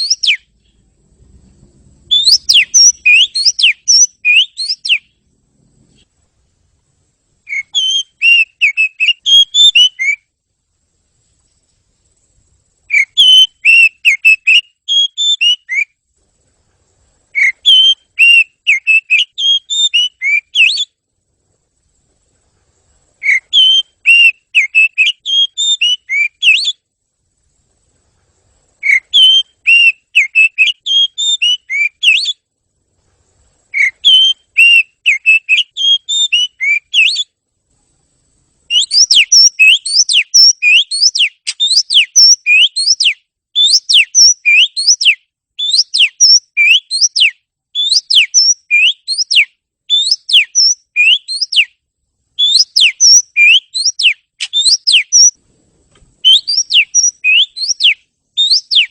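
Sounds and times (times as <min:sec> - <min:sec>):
quick rising bird notes: 0:00.0 - 0:06.1
songbird singing: 0:00.0 - 0:58.9.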